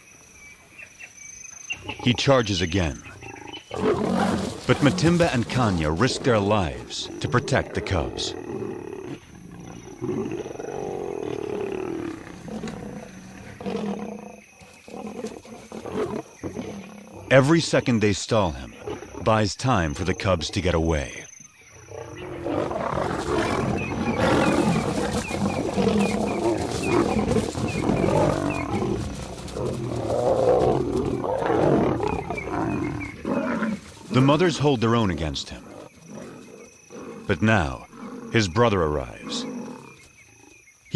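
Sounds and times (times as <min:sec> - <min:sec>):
lions snarling and growling: 0:01.7 - 0:40.6.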